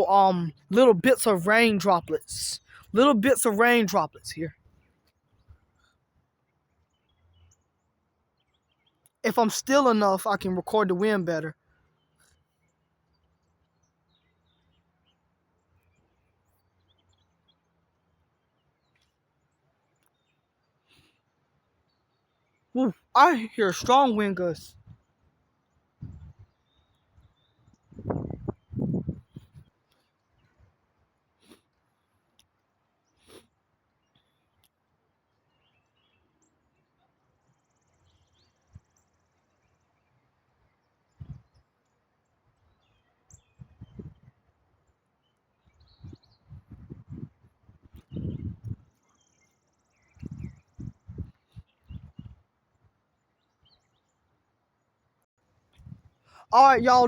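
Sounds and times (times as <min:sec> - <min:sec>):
faint low wind rumble: 0:26.0 - 0:26.6, 0:27.2 - 0:29.7, 0:41.2 - 0:41.6, 0:43.4 - 0:44.4, 0:45.8 - 0:48.9, 0:50.1 - 0:52.4.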